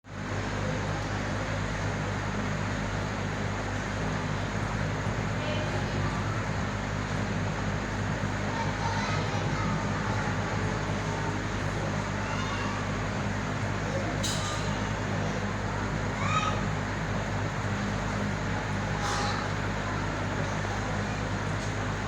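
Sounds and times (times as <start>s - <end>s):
aquarium equipment humming: 0.1s - 22.0s
faint voices: 5.2s - 22.0s.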